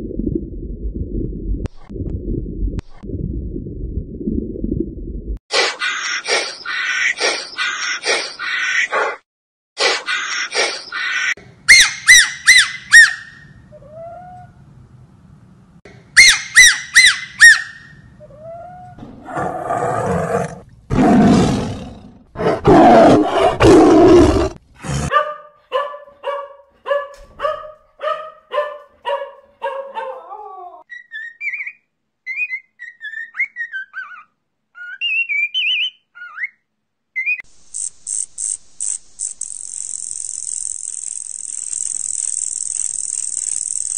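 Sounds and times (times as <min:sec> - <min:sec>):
high chirping animal calls: 0:10.1 - 0:14.5, 0:16.2 - 0:19.0, 0:30.9 - 0:37.4
faint high twittering: 0:37.6 - 0:43.9.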